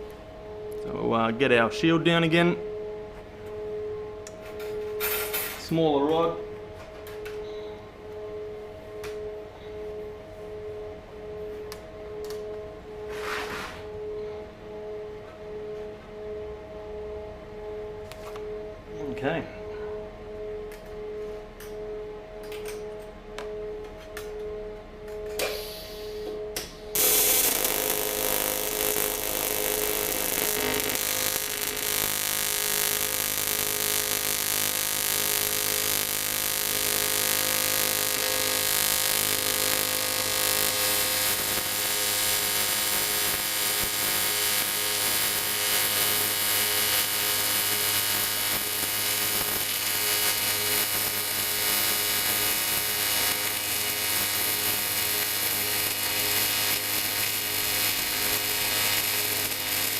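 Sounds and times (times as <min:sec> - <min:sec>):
welding arc buzzing and hissing: 0:26.9 - 0:59.9.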